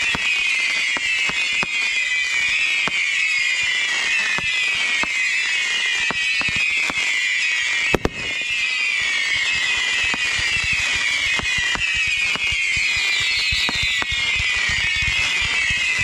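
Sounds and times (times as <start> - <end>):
fireworks popping and cracking: 0.0 - 16.0
high-pitched firework whistling: 0.0 - 16.0
loud firework bang: 8.0 - 8.5.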